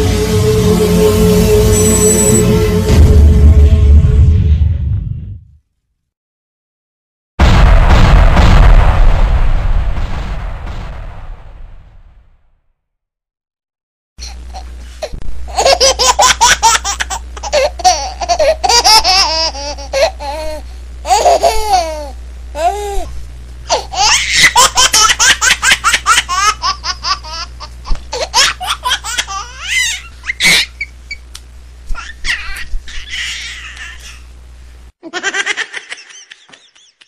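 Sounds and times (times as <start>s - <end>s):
low hum: 0.0s - 5.1s
high-pitched laughter: 15.5s - 22.0s, 23.7s - 31.2s, 35.0s - 37.0s.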